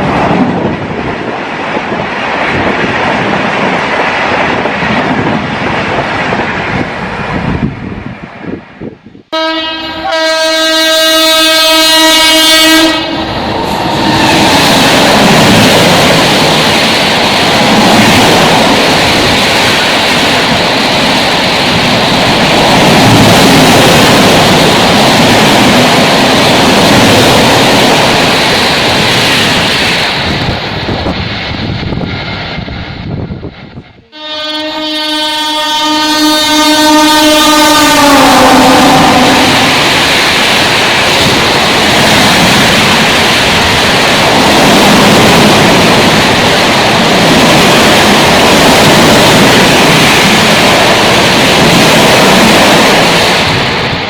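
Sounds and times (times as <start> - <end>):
train passing at high speed: 0.0 - 54.0
train horn: 9.3 - 14.3, 34.1 - 39.8.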